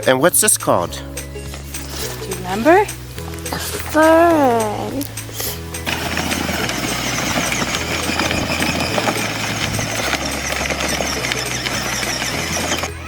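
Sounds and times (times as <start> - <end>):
toy vehicle motor and wheels: 5.1 - 13.0.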